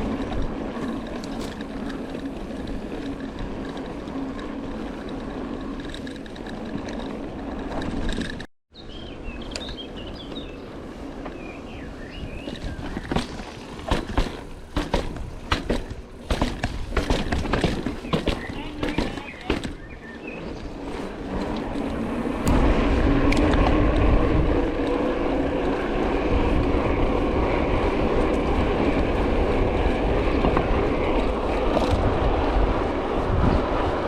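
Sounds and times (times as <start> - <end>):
bike clattering over rough ground: 0.0 - 8.5, 12.4 - 25.8
bike rolling with low hum: 0.0 - 34.0
birds chirping: 8.7 - 21.3
sharp knocks and rattles: 12.6 - 19.9.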